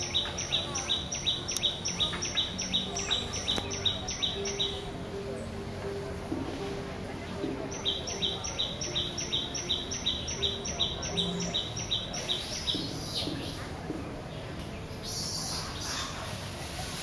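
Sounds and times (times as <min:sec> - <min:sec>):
bird calling high note: 0:00.0 - 0:06.0.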